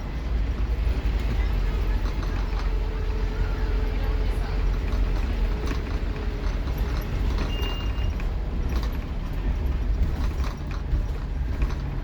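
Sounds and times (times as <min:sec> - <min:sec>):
bus body rattling and creaking: 0:00.0 - 0:12.0
bus diesel engine drone: 0:00.0 - 0:12.0.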